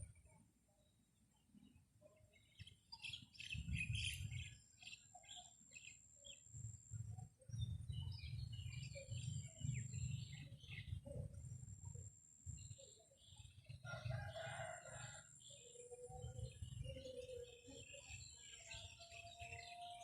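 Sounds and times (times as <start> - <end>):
small birds chirping: 0.0 - 14.7, 15.5 - 20.0
wind buffeting microphone: 3.5 - 4.5.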